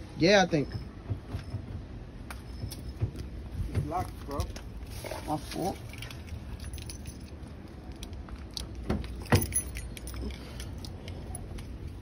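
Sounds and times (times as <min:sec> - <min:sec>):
small metal pieces jingling: 0:05.6 - 0:07.5, 0:09.1 - 0:11.5.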